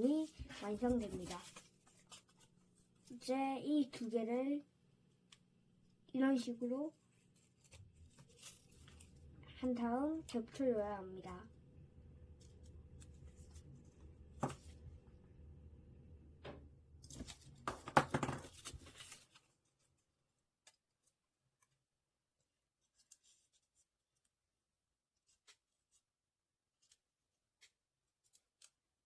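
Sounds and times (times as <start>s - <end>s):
paper rustling: 0.0s - 3.3s, 7.1s - 9.2s, 17.0s - 20.1s, 22.8s - 23.9s.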